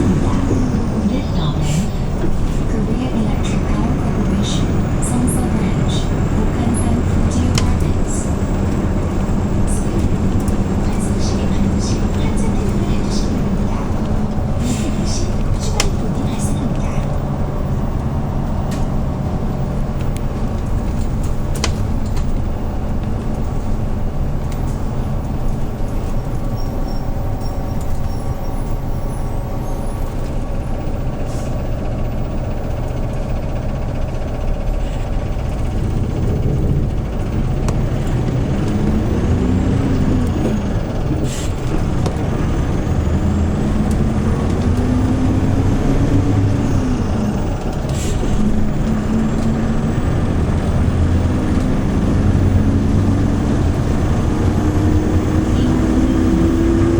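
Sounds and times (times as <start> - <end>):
bus engine running: 0.0 - 56.9
sharp clicks and rattles: 2.0 - 26.6.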